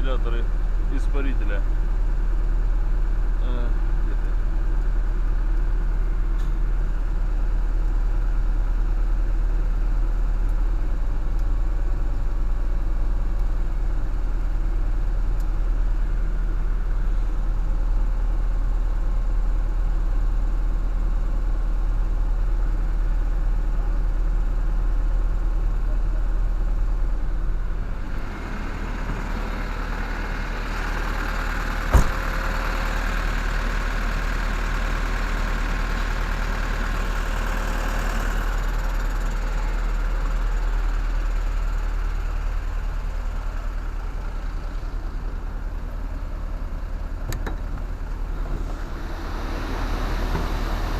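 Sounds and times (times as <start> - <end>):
refrigeration unit engine drone: 0.0 - 50.9
sharp knock: 31.9 - 32.2.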